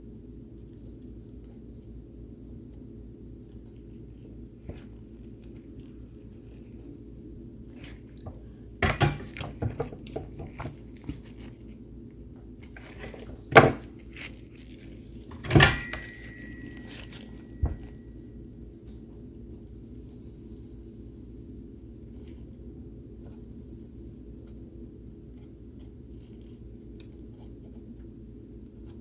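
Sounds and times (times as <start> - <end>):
steady low hum: 0.0 - 29.0
metal tools clattering on workbench: 15.3 - 17.8
sharp knock with ringing tone: 15.4 - 16.9.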